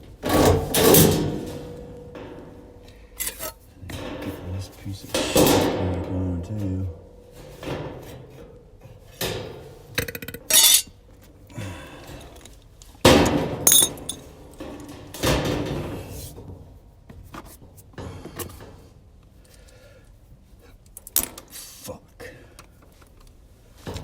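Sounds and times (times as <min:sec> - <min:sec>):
metal knocks and clatter: 0:00.0 - 0:06.3, 0:07.0 - 0:10.9, 0:13.0 - 0:16.1.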